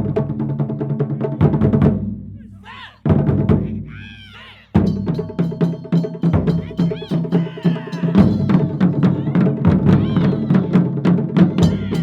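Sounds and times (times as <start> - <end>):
fast driving drumming: 0.0 - 12.0
heavy drum strike ringing: 4.8 - 12.0.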